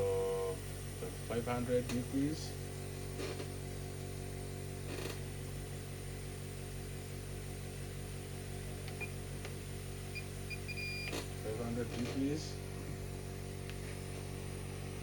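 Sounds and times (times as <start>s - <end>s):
hot air rework station fan humming: 0.0s - 15.0s
short electronic beeps: 10.5s - 11.1s.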